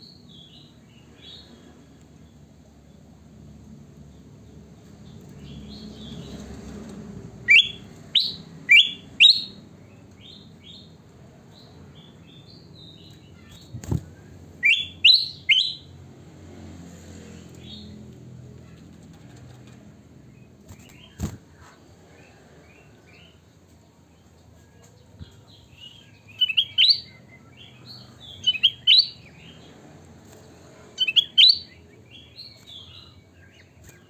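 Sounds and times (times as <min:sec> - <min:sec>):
bulbul singing whistled notes: 0:07.5 - 0:09.6, 0:14.6 - 0:15.9, 0:25.8 - 0:29.3, 0:31.0 - 0:33.6.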